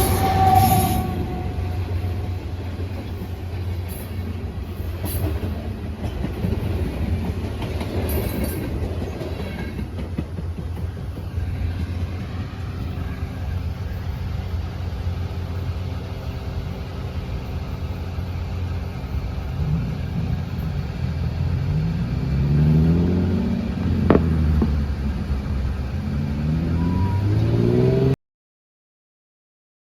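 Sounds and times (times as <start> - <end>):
freight train rumbling: 0.0 - 28.2
engine accelerating: 11.2 - 28.2.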